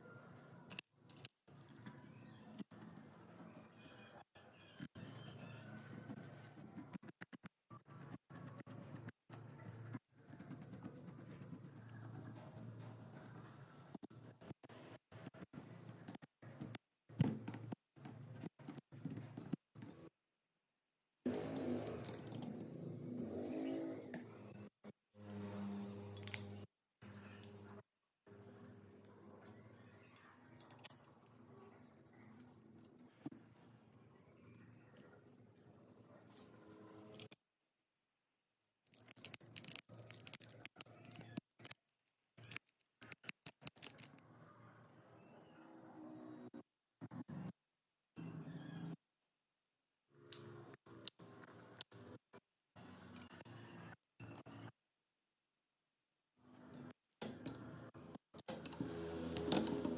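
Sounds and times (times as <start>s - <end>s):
tools clicking and tapping: 38.9s - 44.2s.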